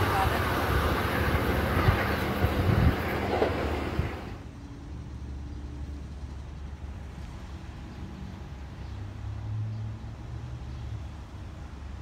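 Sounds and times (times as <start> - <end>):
train running: 0.0 - 7.8
road traffic hum: 0.0 - 12.0.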